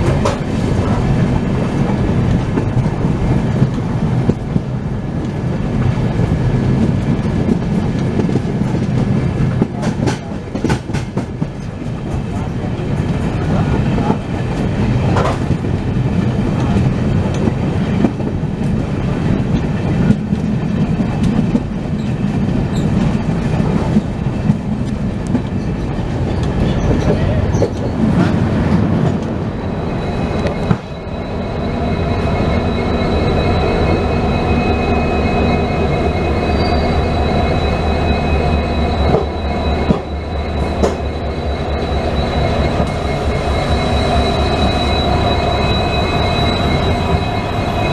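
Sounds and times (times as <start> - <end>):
train wheels rumbling: 0.0 - 47.9
high-pitched wheel squeal: 29.4 - 47.9.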